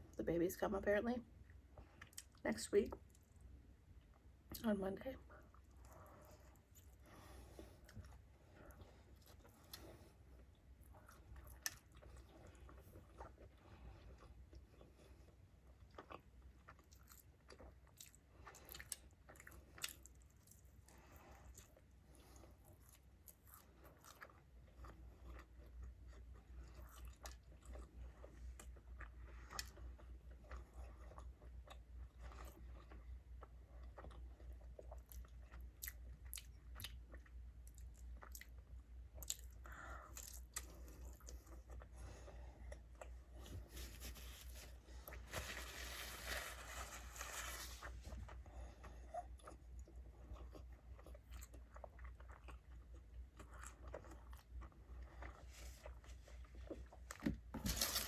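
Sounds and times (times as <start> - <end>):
close chewing and crunching: 1.5 - 4.7, 5.3 - 58.0
rustling noise: 43.4 - 48.3.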